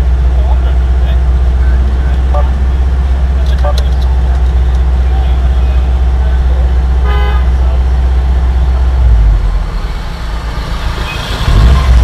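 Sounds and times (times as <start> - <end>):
car engine idling: 0.0 - 12.0
short tooting tone: 2.3 - 2.6.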